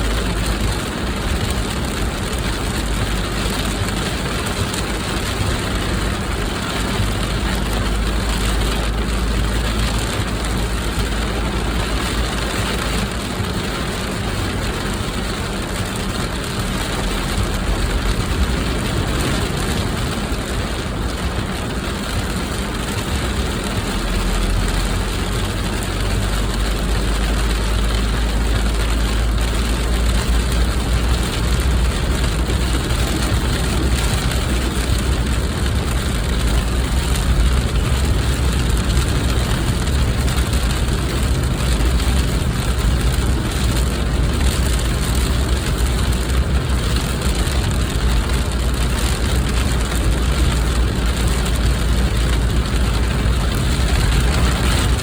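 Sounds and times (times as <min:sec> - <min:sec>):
car engine and tyre noise: 0:00.0 - 0:55.0
deep low rumble: 0:14.2 - 0:55.0.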